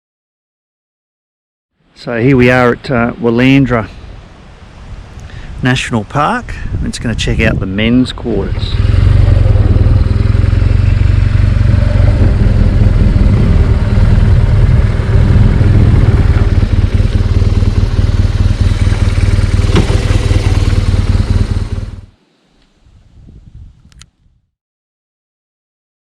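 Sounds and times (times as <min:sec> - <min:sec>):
motorcycle engine rumbling: 0:06.7 - 0:23.8.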